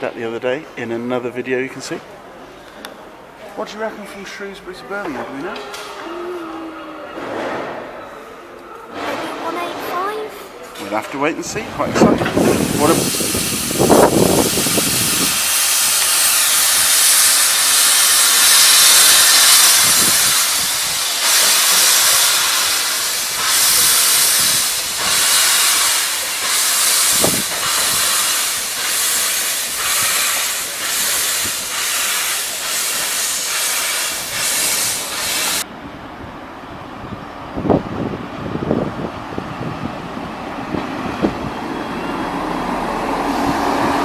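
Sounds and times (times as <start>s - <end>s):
steam locomotive hissing: 11.5s - 35.7s
steam locomotive exhaust puffing: 12.0s - 35.7s.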